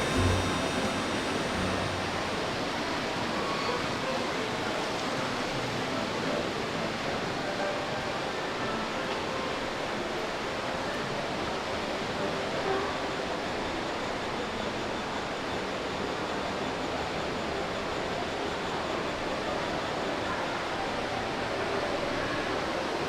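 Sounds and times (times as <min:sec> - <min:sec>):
constant hiss: 0:00.0 - 0:13.4
faint distant voices: 0:00.0 - 0:23.0.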